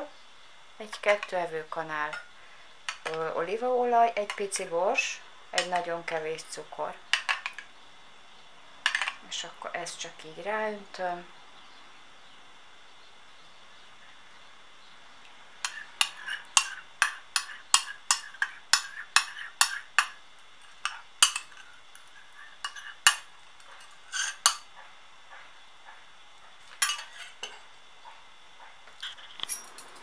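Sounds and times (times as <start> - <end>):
spoon clinking against a bowl: 15.6 - 20.2, 20.8 - 21.7, 26.8 - 27.6
spoon scraping dressing: 15.6 - 24.6, 26.6 - 27.5.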